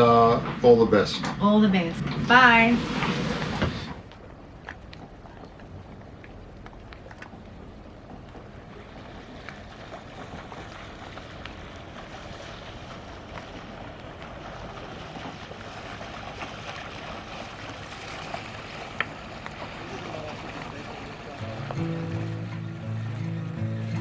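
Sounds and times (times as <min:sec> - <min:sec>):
water noise: 0:00.0 - 0:24.0.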